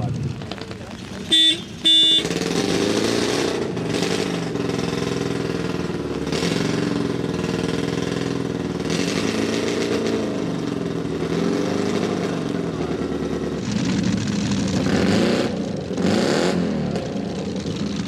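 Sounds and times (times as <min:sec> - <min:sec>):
car engine idling: 0:00.0 - 0:02.8, 0:03.5 - 0:14.9, 0:16.8 - 0:18.0
short loud horn toot: 0:01.3 - 0:02.3.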